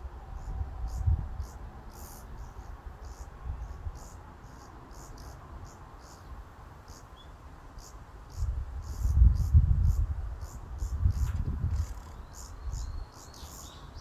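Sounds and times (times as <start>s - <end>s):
low wind rumble: 0.0s - 4.1s, 8.3s - 13.1s.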